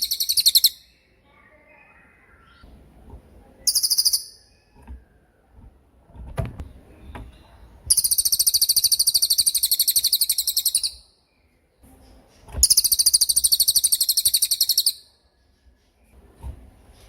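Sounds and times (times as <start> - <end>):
songbird high-pitched trills: 0.0 - 2.6, 3.6 - 4.8, 7.9 - 11.2, 12.6 - 15.2.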